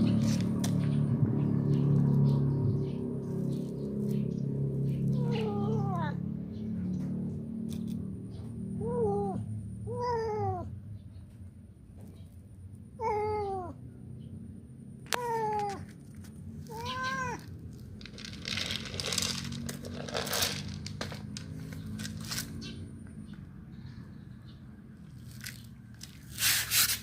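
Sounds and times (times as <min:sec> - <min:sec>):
cat meowing: 0:05.1 - 0:06.2, 0:08.8 - 0:10.7, 0:13.0 - 0:13.8, 0:15.1 - 0:15.9, 0:16.6 - 0:17.5.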